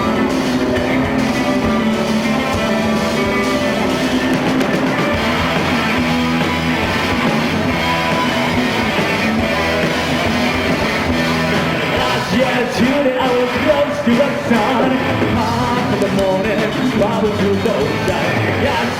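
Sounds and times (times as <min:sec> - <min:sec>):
rock band playing: 0:00.0 - 0:18.9.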